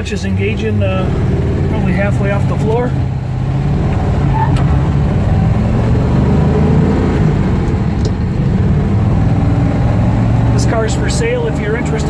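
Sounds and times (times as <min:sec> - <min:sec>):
car engine running: 0:00.0 - 0:12.0
road noise: 0:00.0 - 0:12.0.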